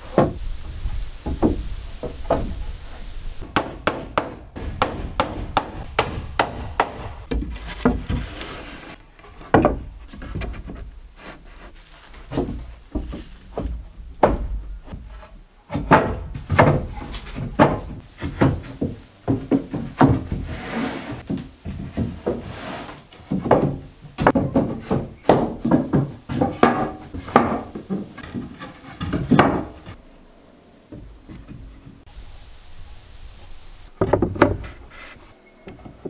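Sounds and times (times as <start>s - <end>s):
wooden knocks and thuds: 0.0s - 30.0s, 30.9s - 32.1s, 33.9s - 35.0s
wood scraping and rubbing: 4.6s - 30.0s, 33.4s - 36.0s.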